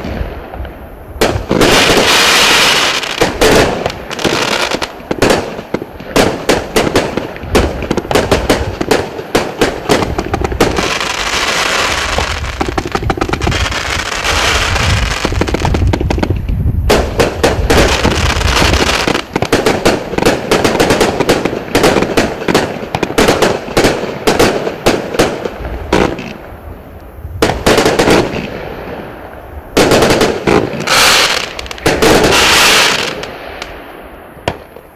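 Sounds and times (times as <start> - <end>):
firework cake firing volleys: 0.6 - 26.4.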